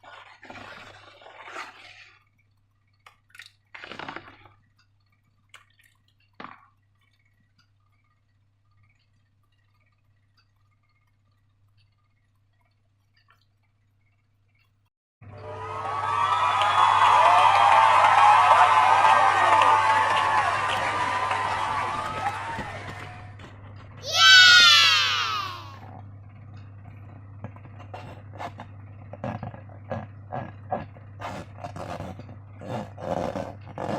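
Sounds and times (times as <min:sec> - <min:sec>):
slime squelching by hand: 0:00.0 - 0:02.3, 0:03.0 - 0:04.6.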